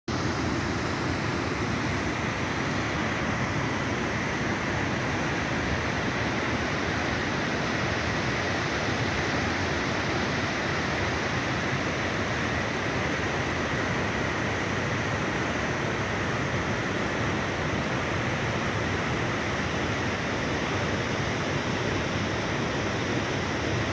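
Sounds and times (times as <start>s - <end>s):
mountain stream rushing: 0.1s - 23.9s.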